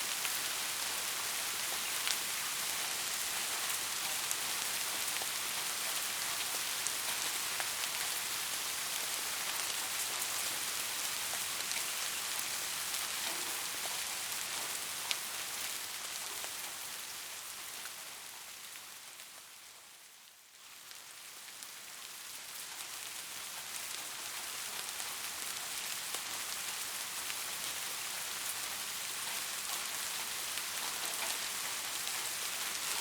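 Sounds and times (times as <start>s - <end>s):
rain falling: 0.0s - 33.0s
ticks of raindrops: 0.1s - 19.4s, 20.3s - 33.0s.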